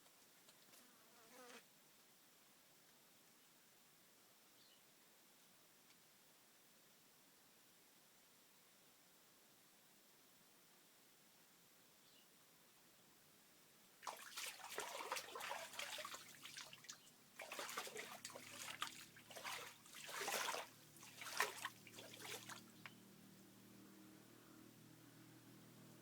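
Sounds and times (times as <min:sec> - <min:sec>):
water splashing and trickling: 0:14.0 - 0:23.0.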